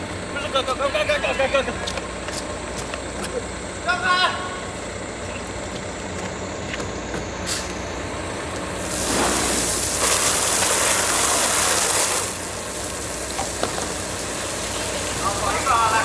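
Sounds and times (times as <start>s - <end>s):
loud rushing hiss: 8.7s - 16.0s.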